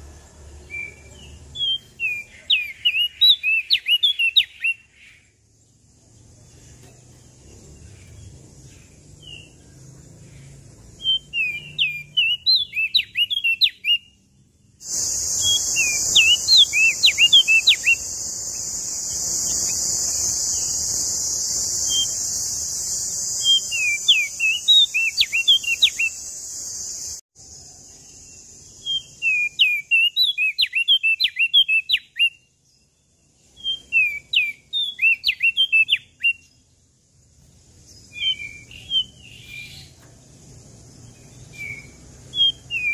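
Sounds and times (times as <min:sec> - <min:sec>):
songbird chirping: 0:00.0 - 0:42.9
loud high-pitched hiss: 0:14.8 - 0:27.2.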